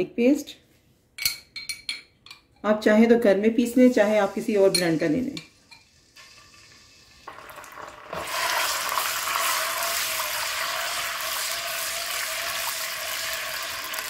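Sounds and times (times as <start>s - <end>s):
paste sizzling in hot oil: 4.2s - 14.0s.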